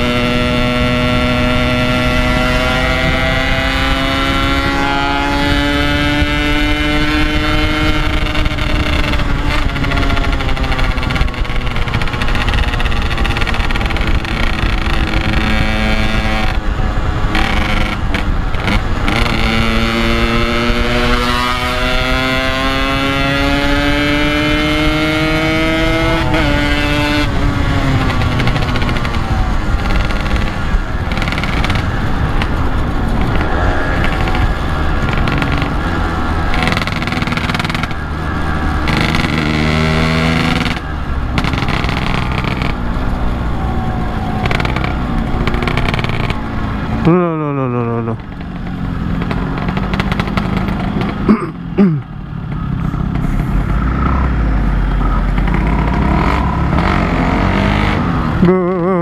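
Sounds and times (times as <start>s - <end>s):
wind rushing over microphone: 0.0s - 47.1s
motorcycle engine under way: 0.0s - 59.0s.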